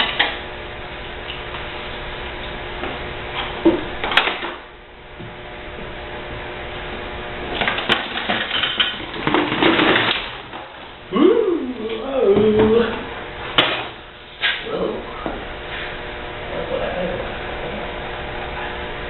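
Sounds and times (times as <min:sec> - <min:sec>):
dishwasher parts clattering: 0:07.5 - 0:10.8.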